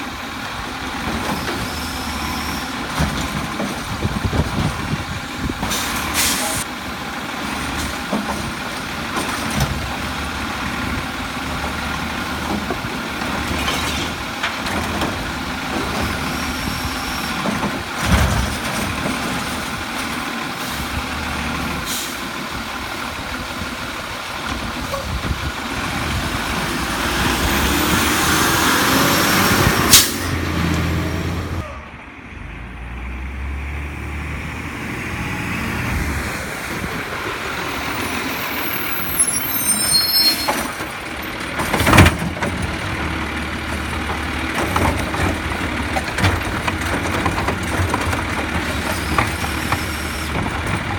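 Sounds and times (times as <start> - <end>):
garbage truck diesel engine: 0.0 - 50.9
air brake hiss: 5.7 - 6.7, 21.8 - 22.3.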